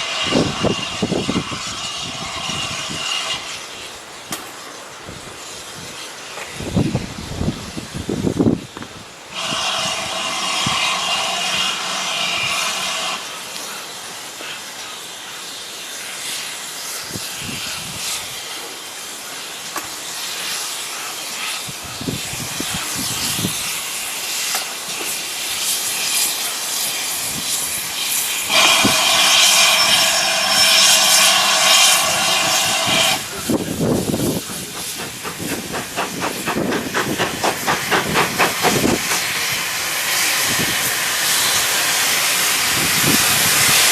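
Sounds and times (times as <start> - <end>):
steam hissing: 0.0 - 43.9
steam whistle blasts: 9.3 - 13.2, 28.4 - 33.3.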